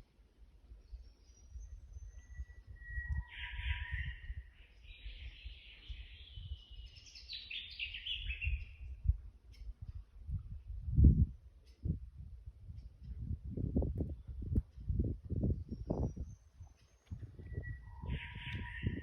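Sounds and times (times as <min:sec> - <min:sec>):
birds calling: 0:16.7 - 0:19.0.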